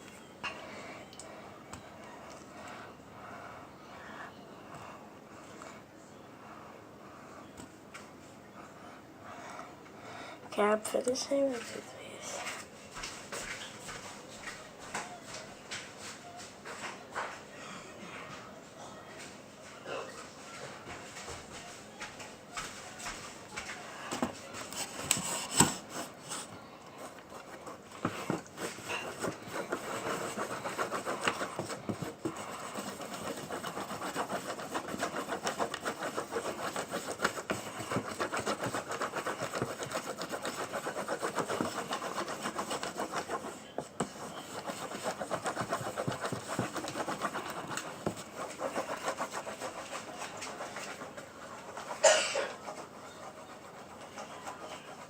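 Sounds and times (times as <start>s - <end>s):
utensil stirring thick mixture: 23.6s - 55.0s.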